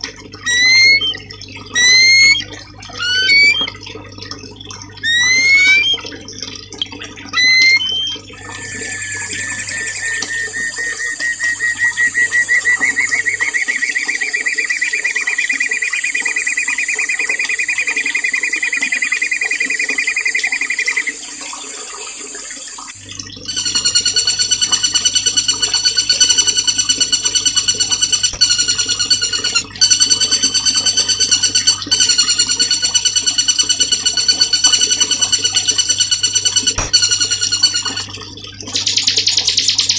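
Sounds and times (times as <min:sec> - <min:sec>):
faint running water: 0:00.0 - 0:39.9
songbird chirping and trilling: 0:01.8 - 0:02.4, 0:03.0 - 0:03.7, 0:05.0 - 0:06.0, 0:07.4 - 0:21.2.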